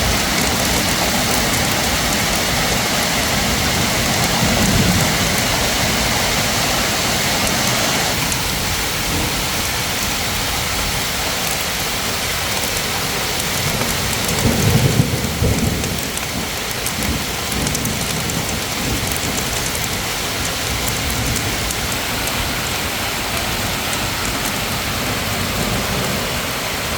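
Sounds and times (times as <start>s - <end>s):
heavy rain pouring: 0.0s - 26.9s
low rumble of thunder: 13.6s - 23.7s.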